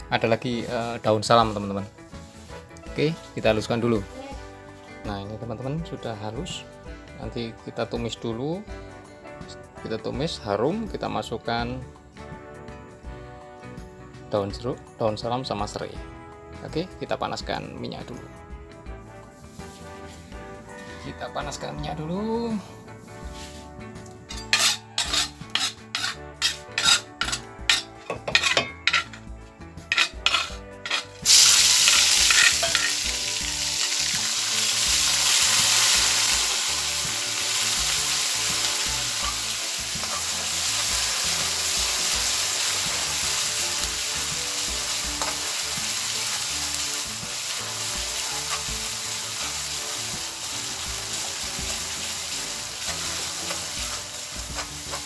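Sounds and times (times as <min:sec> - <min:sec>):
spatula stirring in wok: 0:24.3 - 0:33.3, 0:36.9 - 0:55.0
paste sizzling in hot oil: 0:24.3 - 0:55.0.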